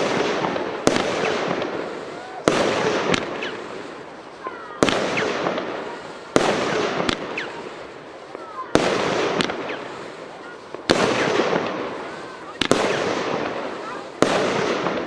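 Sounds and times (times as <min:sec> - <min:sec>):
firework bangs: 0:00.0 - 0:15.0
firework pops: 0:00.0 - 0:15.0
noisy crackling burst: 0:00.0 - 0:15.0.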